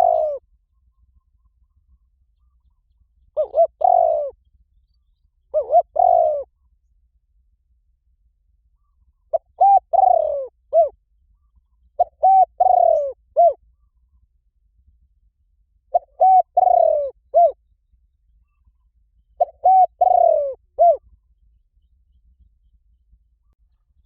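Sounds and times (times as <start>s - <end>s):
dove cooing: 0.0s - 0.4s, 3.4s - 4.4s, 5.5s - 6.6s, 9.3s - 11.0s, 12.0s - 13.6s, 15.9s - 17.6s, 19.4s - 21.1s.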